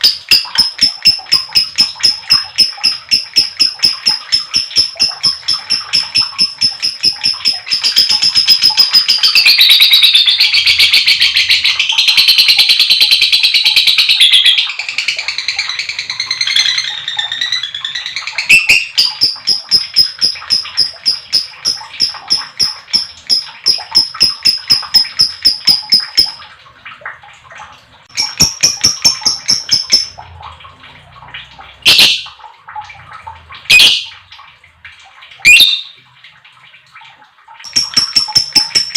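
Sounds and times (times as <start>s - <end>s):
lovebird chattering trill: 0.0s - 26.4s, 28.1s - 30.2s, 37.7s - 38.9s
bird sharp single calls: 35.4s - 36.0s.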